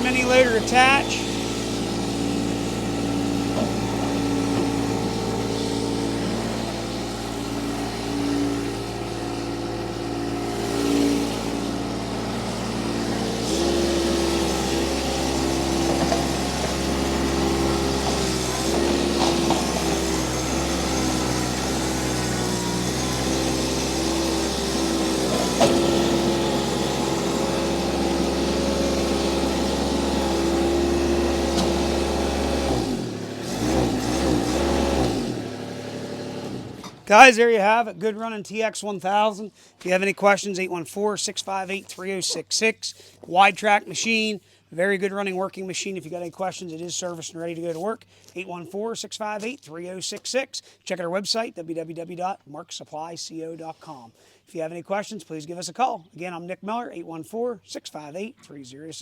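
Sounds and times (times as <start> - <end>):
skid steer engine running: 0.0 - 37.4.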